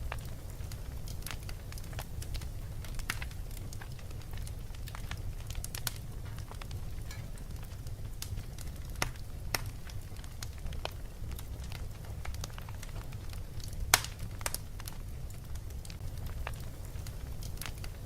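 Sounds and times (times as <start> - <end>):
low fire rumble: 0.0 - 18.0
wood fire crackling and popping: 0.0 - 18.0.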